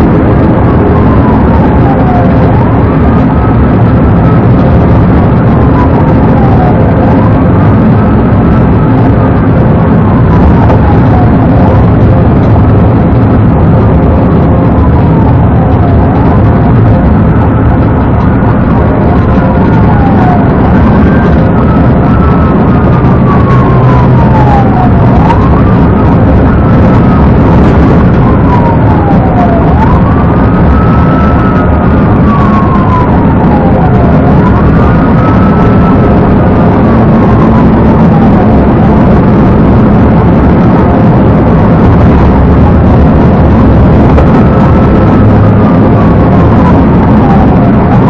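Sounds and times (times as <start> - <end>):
car engine and road noise: 0.0 - 48.0
police siren wailing: 0.0 - 48.0
vehicle rumble at speed: 0.0 - 48.0.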